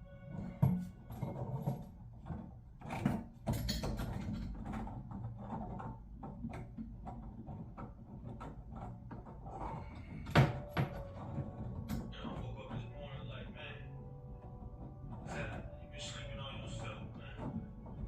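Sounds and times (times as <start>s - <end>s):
tools and parts clattering: 0.3s - 12.8s.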